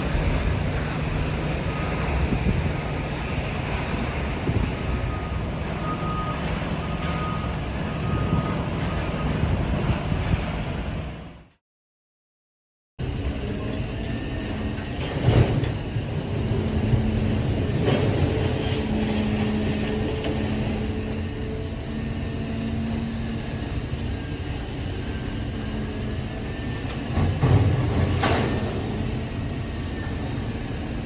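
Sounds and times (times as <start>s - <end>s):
scrap metal baler drone: 5.2s - 11.3s, 26.6s - 30.6s.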